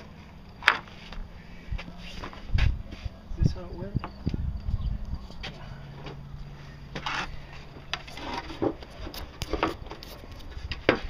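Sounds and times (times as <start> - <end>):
wood scraping on wood: 0.6 - 3.2, 5.4 - 11.0.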